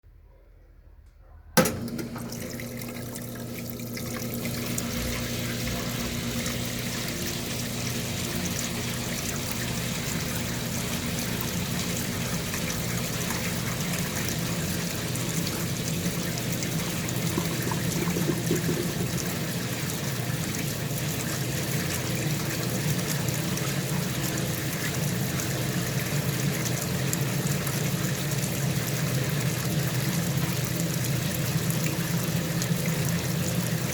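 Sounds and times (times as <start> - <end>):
washing machine click: 1.6 - 2.6
washing machine motor humming: 1.6 - 33.9
water rushing out draining: 1.6 - 33.9.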